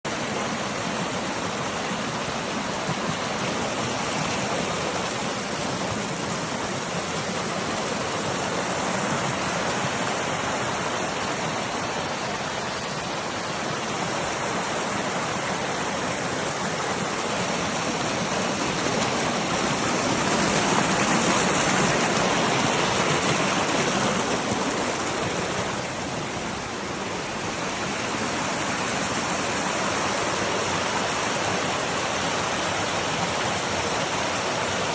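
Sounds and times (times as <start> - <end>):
flowing water rushing: 0.0 - 34.9.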